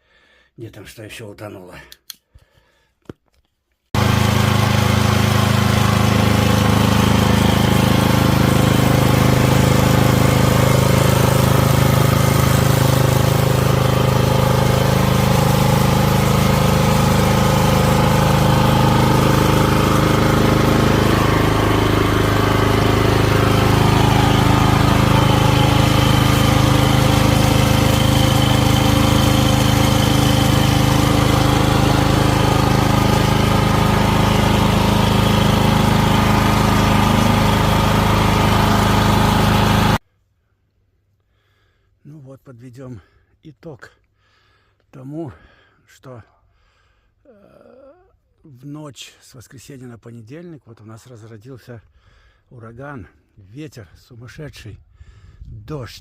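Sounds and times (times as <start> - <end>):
small engine running: 4.0 - 40.0.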